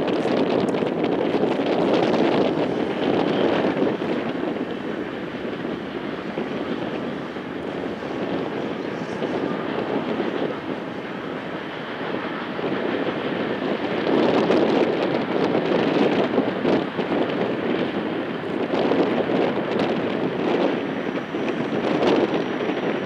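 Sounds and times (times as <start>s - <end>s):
distant freight train rumble: 0.0s - 23.0s
wind noise on microphone: 0.0s - 23.0s.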